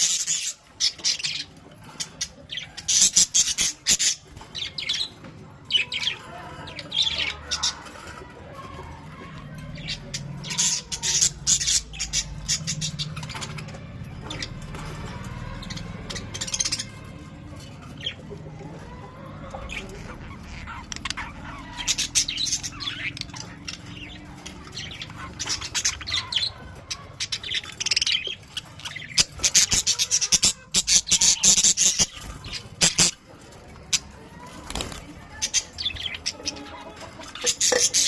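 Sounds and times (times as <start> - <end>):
budgerigars chattering: 18.0 - 38.0.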